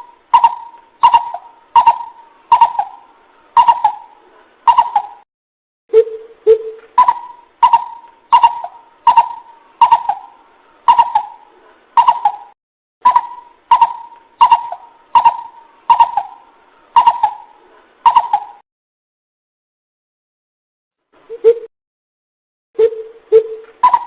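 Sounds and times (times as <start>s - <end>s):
coucal hooting calls: 0.0s - 5.2s, 5.9s - 18.6s, 22.8s - 24.0s.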